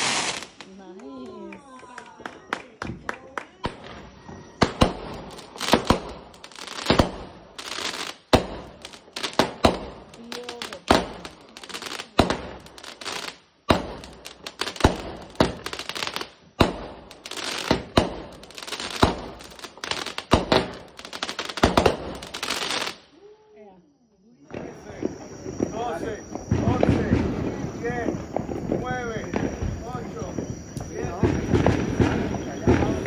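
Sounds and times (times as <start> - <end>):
fireworks bangs: 0.0 - 23.1, 24.4 - 33.0
fireworks crackling: 0.0 - 23.2, 24.4 - 33.0.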